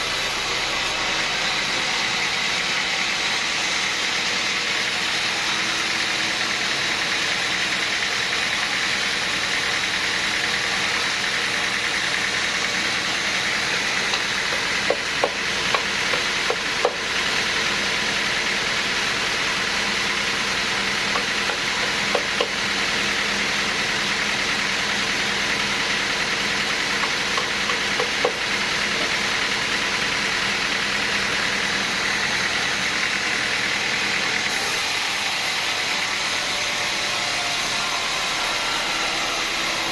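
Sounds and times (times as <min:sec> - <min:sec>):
machinery whining: 0:00.0 - 0:18.6, 0:25.4 - 0:39.9.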